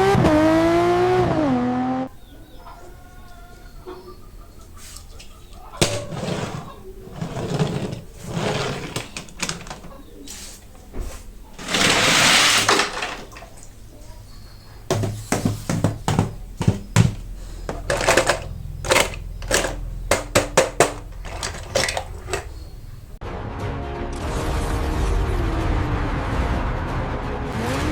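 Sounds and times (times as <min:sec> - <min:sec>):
toy cars clicking and tapping: 0:11.6 - 0:13.2, 0:17.7 - 0:22.6
packaging rustling: 0:14.9 - 0:22.6.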